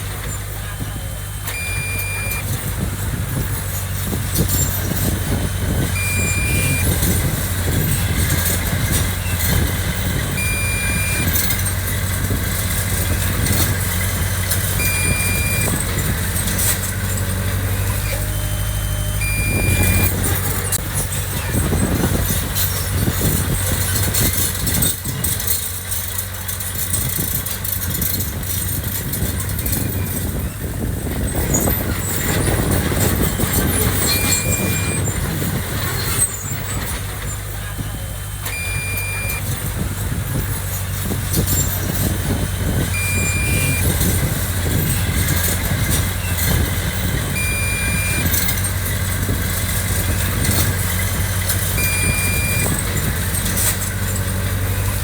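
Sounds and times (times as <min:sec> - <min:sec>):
diesel machinery engine running: 0:00.0 - 0:55.0
backup alarm beeps: 0:01.4 - 0:02.6, 0:06.0 - 0:07.2, 0:10.3 - 0:11.6, 0:14.8 - 0:15.9, 0:17.9 - 0:20.8, 0:33.3 - 0:35.1, 0:38.4 - 0:39.6, 0:42.9 - 0:44.0, 0:47.4 - 0:48.6, 0:51.8 - 0:52.8.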